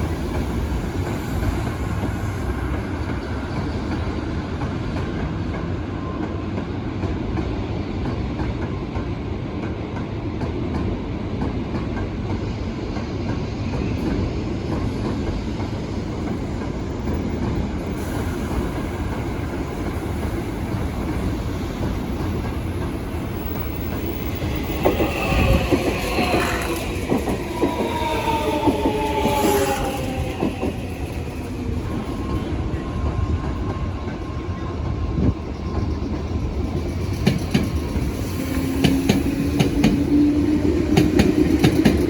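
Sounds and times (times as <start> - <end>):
train rumbling on rails: 0.0 - 42.0
wheels squealing: 23.3 - 32.5.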